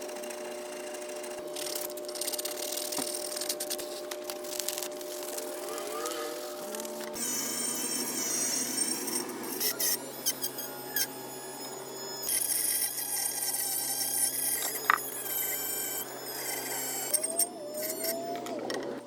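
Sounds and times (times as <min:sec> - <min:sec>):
electric rotary tool whining: 0:00.0 - 0:19.0.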